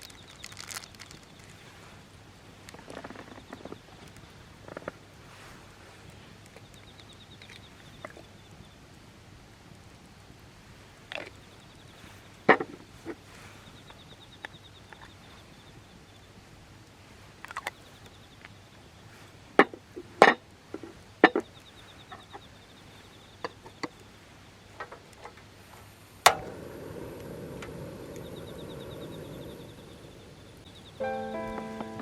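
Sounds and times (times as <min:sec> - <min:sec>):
low rushing noise: 0:26.2 - 0:32.0.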